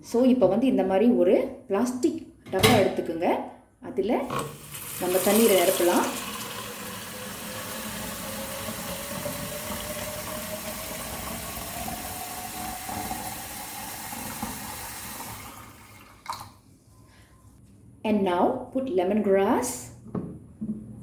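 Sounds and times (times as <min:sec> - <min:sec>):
water filling a plastic bottle: 0:04.4 - 0:16.6.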